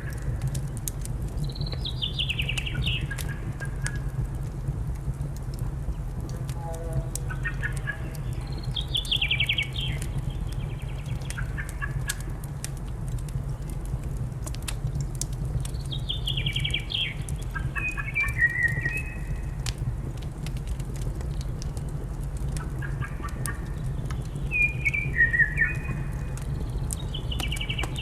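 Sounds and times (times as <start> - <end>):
songbird singing: 0.0 - 4.1, 5.9 - 12.4, 15.7 - 19.6, 22.6 - 28.0
wood fire crackling: 0.0 - 28.0.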